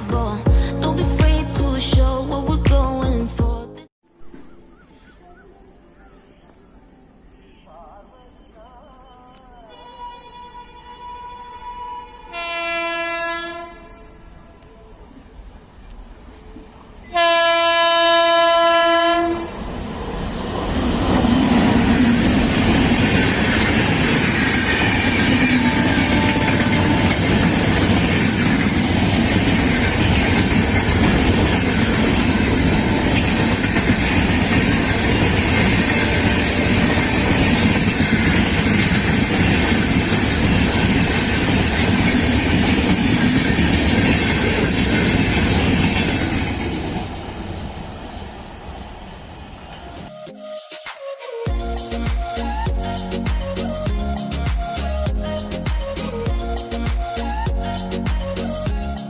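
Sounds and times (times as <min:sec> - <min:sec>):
locomotive horn blast: 0:09.7 - 0:14.6, 0:17.1 - 0:19.6, 0:25.2 - 0:27.7
train wheels clattering over rails: 0:19.8 - 0:50.1.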